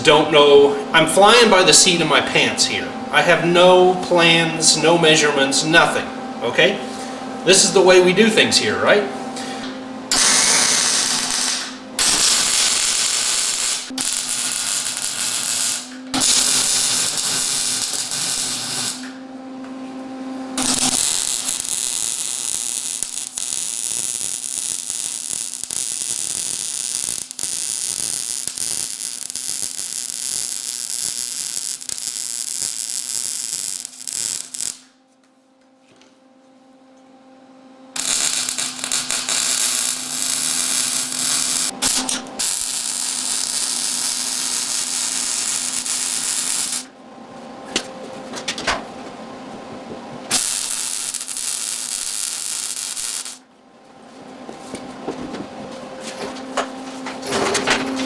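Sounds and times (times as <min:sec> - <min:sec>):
welder hum: 0:00.0 - 0:58.0
arc welding crackling: 0:09.4 - 0:19.3, 0:20.6 - 0:35.0, 0:37.9 - 0:47.0, 0:50.2 - 0:53.5.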